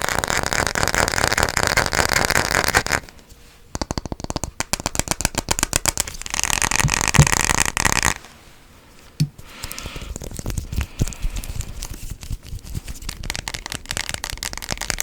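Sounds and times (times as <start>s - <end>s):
fast tapping on hard object: 3.7s - 8.2s, 12.5s - 15.0s.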